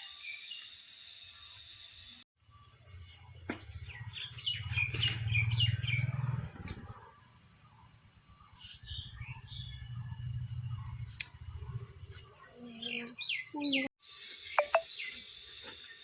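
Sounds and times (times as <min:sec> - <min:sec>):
small birds chirping: 0:03.2 - 0:15.2.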